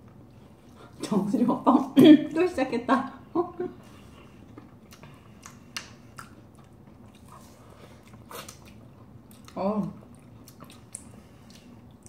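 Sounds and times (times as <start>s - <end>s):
wet chewing and mouth sounds: 3.9s - 12.0s.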